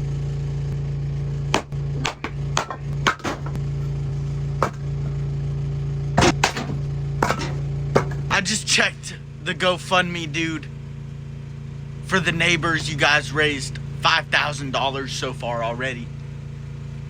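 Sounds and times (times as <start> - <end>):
generator engine humming: 0.0 - 17.0
sharp knocks and clacks: 1.6 - 3.9, 4.6 - 5.1, 6.2 - 8.3.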